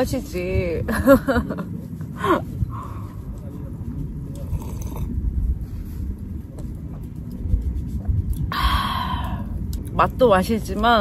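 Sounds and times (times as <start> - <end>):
low steady rumble: 0.0 - 11.0
person chewing food: 4.3 - 5.1
person sipping from cup: 4.3 - 5.2.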